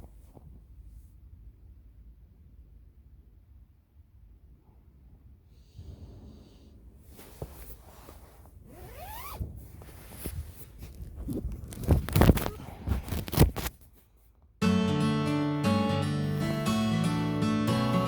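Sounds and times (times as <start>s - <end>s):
zipper pulled: 7.2s - 13.8s
gear rustling: 7.2s - 14.0s.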